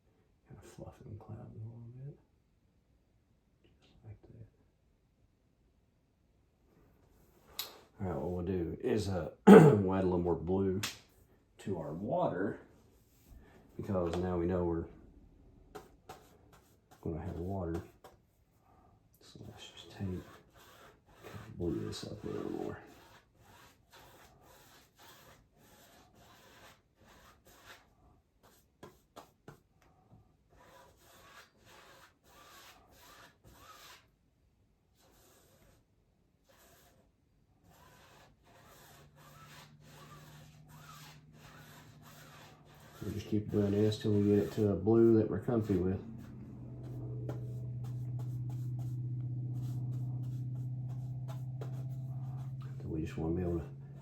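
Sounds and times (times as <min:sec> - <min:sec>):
paintbrush scrubbing: 0:15.7 - 0:18.2, 0:19.4 - 0:29.6, 0:30.5 - 0:34.1, 0:35.0 - 0:35.8, 0:36.4 - 0:54.0
steady low hum: 0:39.5 - 0:54.0.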